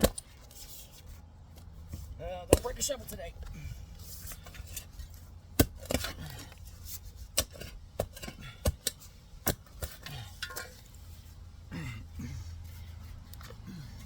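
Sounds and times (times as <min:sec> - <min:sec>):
shovel scraping dirt: 0:00.0 - 0:01.1, 0:01.8 - 0:11.3
shovel blade knocking roots: 0:02.4 - 0:03.2, 0:04.2 - 0:11.0.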